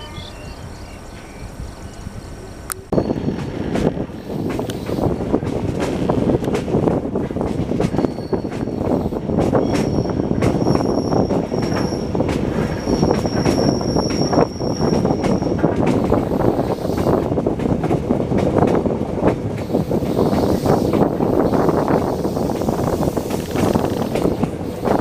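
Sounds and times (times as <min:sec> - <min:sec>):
train rumbling on rails: 0:00.0 - 0:25.0
wheels clacking over rail joints: 0:02.6 - 0:25.0
high-pitched wheel squeal: 0:08.0 - 0:09.0, 0:09.6 - 0:15.6.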